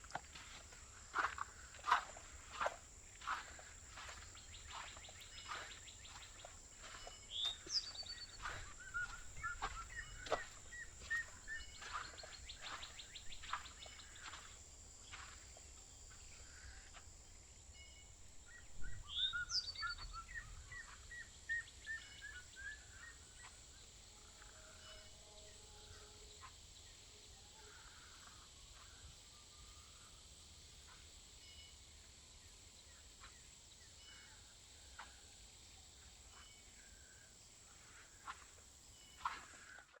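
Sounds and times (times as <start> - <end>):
footsteps crunching on trail: 0.0 - 17.2, 17.8 - 23.6, 36.3 - 36.8, 37.6 - 40.0
bird whistling and chirping: 6.8 - 13.6, 18.5 - 23.5.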